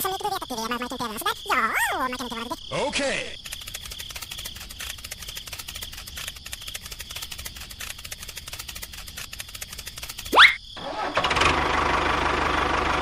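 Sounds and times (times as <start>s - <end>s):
squeaky high-pitched voice: 0.0s - 2.6s, 10.3s - 10.6s
insects chirring: 0.0s - 11.1s.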